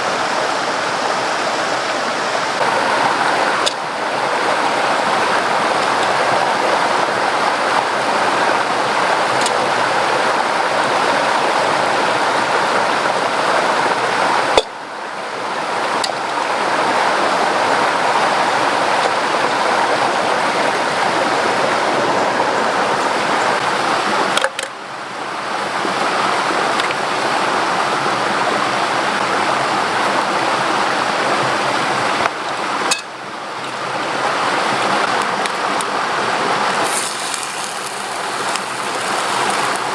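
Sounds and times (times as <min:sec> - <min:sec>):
water rushing: 0:00.0 - 0:14.6, 0:33.5 - 0:39.9.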